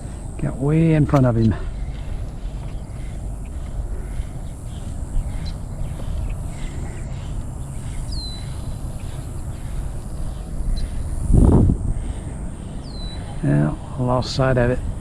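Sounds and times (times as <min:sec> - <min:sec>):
faint ticks: 0:00.0 - 0:11.0
high insect buzz: 0:00.0 - 0:15.0
falling bird chirp: 0:01.4 - 0:11.3, 0:12.2 - 0:13.4.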